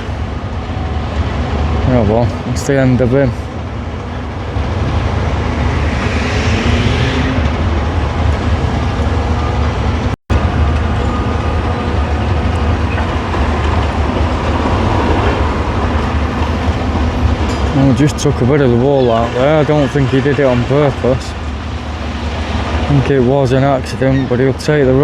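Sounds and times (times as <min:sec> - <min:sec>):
excavator diesel engine rumbling: 0:00.0 - 0:25.0.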